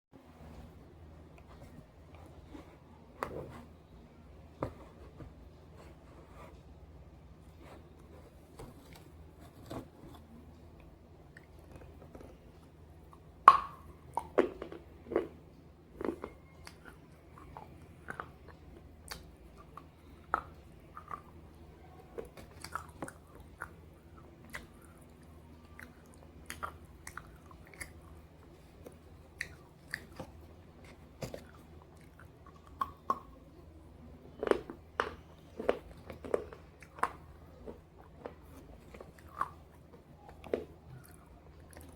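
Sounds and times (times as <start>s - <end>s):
crunching and chewing slate: 13.4s - 21.4s, 22.2s - 33.5s, 34.3s - 41.9s.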